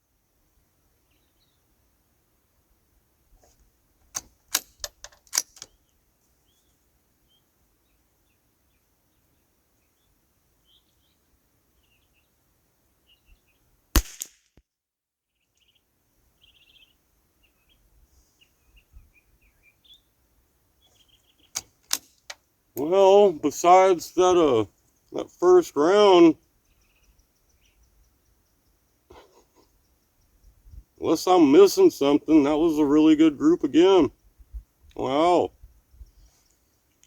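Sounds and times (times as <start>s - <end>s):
small birds chirping: 0.9s - 1.8s, 5.5s - 13.8s, 15.3s - 37.0s
rifle bolt clicks: 4.0s - 5.8s, 14.0s - 14.4s, 21.6s - 22.4s
rifle shot: 14.0s - 14.5s.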